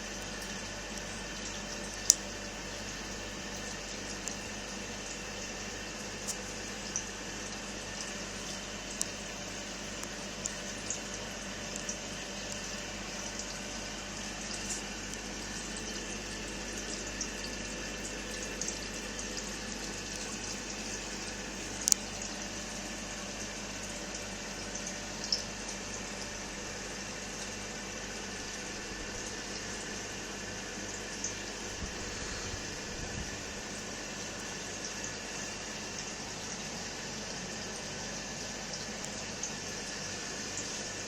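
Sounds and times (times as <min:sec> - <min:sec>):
fish tank water bubbling: 0:00.0 - 0:26.3, 0:31.1 - 0:37.3.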